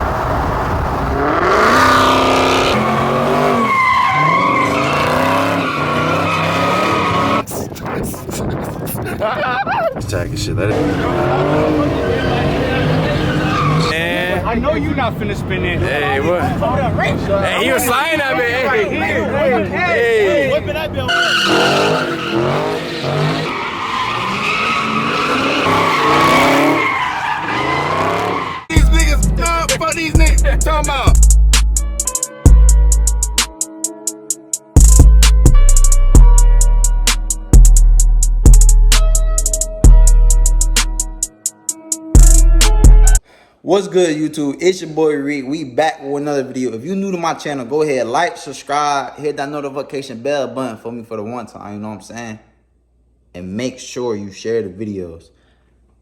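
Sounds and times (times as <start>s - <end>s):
car engine revving: 0.0s - 7.4s, 27.5s - 31.2s
car engine revving hard: 0.0s - 7.4s, 21.5s - 23.5s, 24.2s - 26.9s
tyres squealing: 2.0s - 7.4s, 10.7s - 14.0s, 19.3s - 29.1s.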